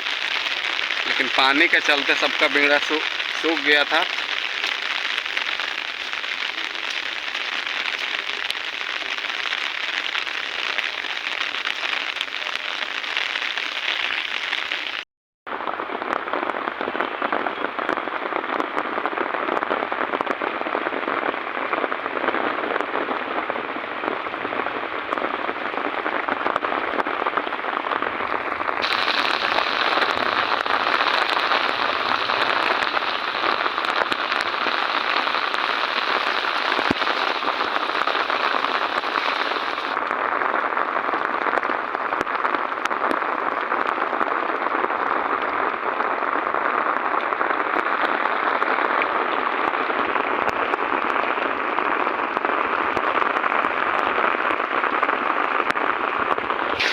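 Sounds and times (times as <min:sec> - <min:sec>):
heavy rain pouring: 0:00.0 - 0:15.0, 0:23.2 - 0:42.8, 0:53.0 - 0:56.9.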